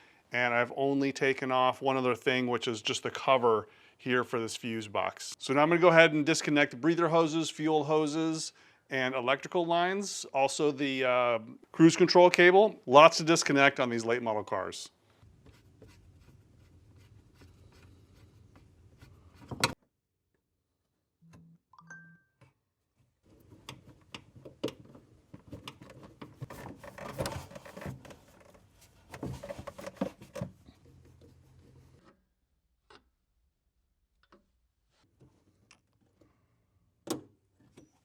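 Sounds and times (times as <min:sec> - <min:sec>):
handling noise of hoses and connectors: 0:23.2 - 0:32.2.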